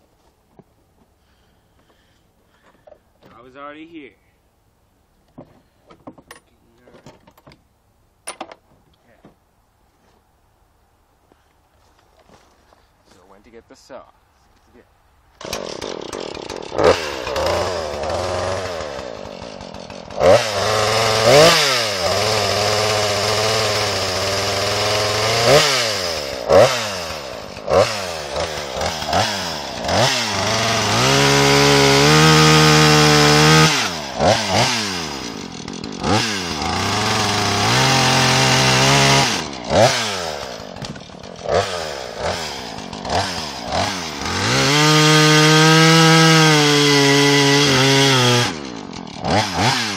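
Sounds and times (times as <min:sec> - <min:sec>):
chainsaw engine revving: 0:15.4 - 0:49.9.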